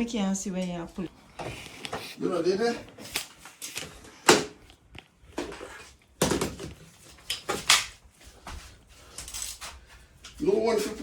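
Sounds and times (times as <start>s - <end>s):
tools and parts clattering: 9.1s - 9.7s.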